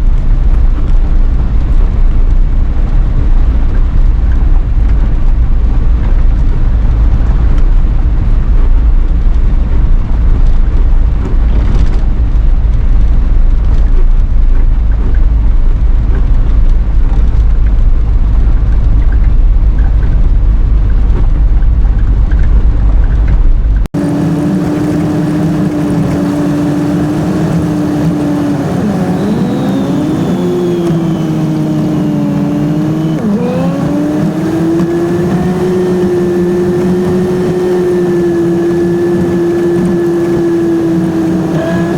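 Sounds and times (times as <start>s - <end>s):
low rumble: 0.0s - 41.9s
motor humming: 24.0s - 41.9s.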